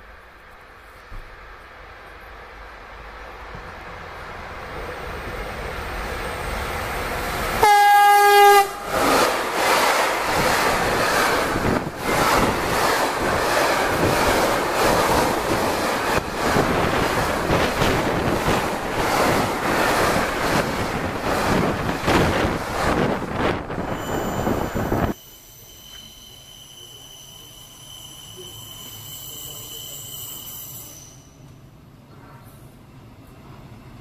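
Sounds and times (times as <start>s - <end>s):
freight train passing: 0.0s - 34.0s
train horn blast: 7.6s - 8.9s, 32.1s - 32.6s.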